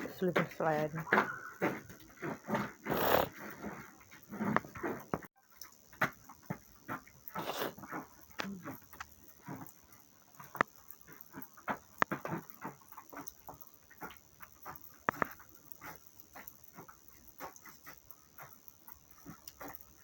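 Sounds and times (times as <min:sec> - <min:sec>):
small dog barking: 0:01.1 - 0:01.8.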